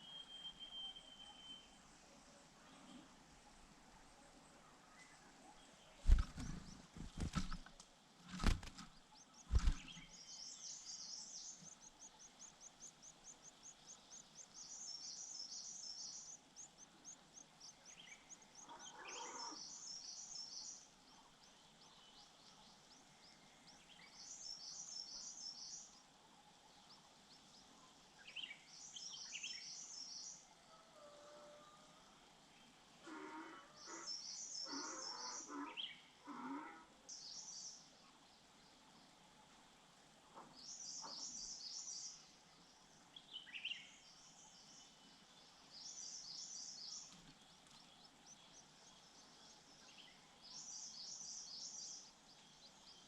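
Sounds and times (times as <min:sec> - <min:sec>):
birds chirping: 0:05.0 - 0:30.2.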